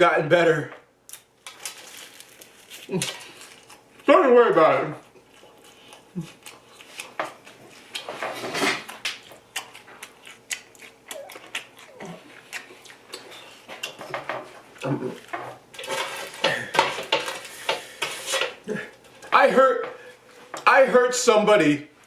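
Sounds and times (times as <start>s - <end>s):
plates and cutlery clatter: 8.1s - 8.9s, 15.3s - 18.6s.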